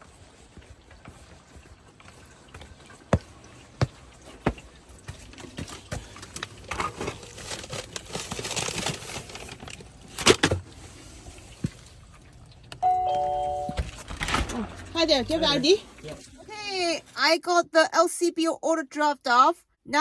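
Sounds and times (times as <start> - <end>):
footsteps: 0.0 - 6.3
rustling and handling noise: 0.0 - 12.6.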